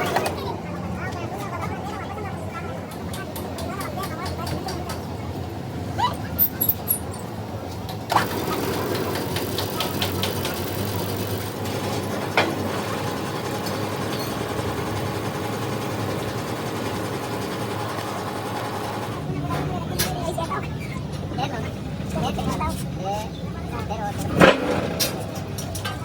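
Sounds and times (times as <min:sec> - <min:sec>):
machine running: 0:08.1 - 0:19.3.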